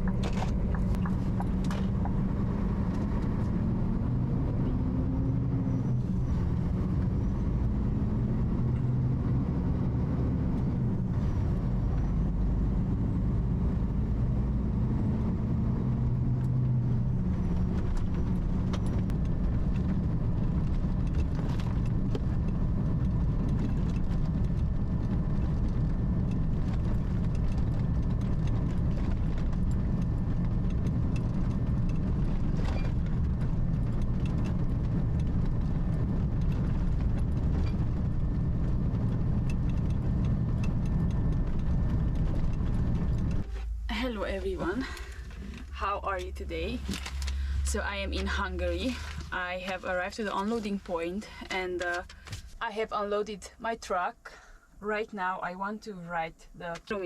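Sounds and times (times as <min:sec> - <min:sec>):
truck engine drone: 0:00.0 - 0:52.6
road rumble: 0:00.0 - 0:57.0.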